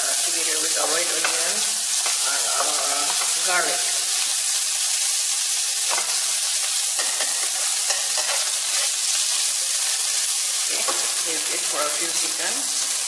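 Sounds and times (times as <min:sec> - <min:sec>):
food sizzling in a wok: 0:00.0 - 0:13.0
spatula scraping a pan: 0:05.7 - 0:11.2.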